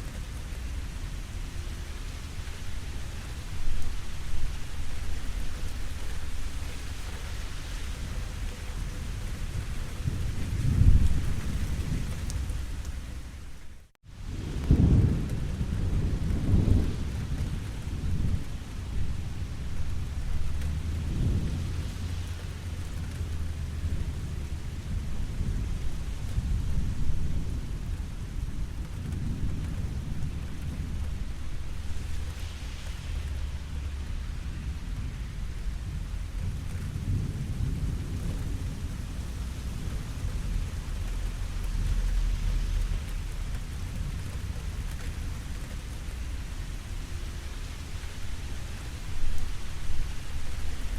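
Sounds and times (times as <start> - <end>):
steady rain falling: 0.0 - 50.9
thunder rumbling: 0.0 - 50.9.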